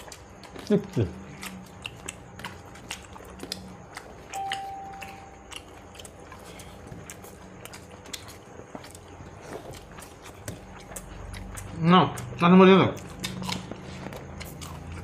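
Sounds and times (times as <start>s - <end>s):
chewing and food handling: 0.0s - 15.0s
steady tone: 4.3s - 5.6s.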